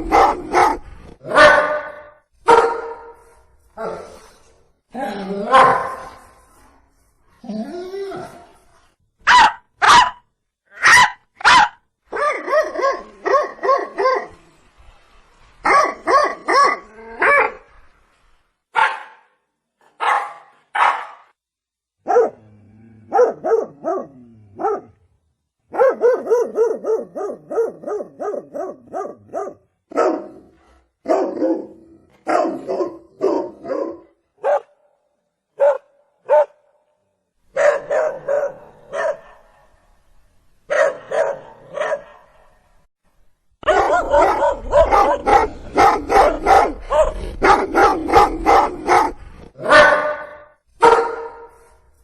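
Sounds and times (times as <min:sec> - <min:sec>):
dog barking: 0:00.0 - 0:03.2, 0:05.5 - 0:06.2, 0:09.2 - 0:10.2, 0:10.8 - 0:14.3, 0:15.6 - 0:17.6, 0:18.7 - 0:19.4, 0:20.0 - 0:21.3, 0:22.0 - 0:22.4, 0:23.1 - 0:25.0, 0:25.7 - 0:34.9, 0:35.6 - 0:36.7, 0:37.5 - 0:39.7, 0:40.7 - 0:42.6, 0:43.6 - 0:51.7.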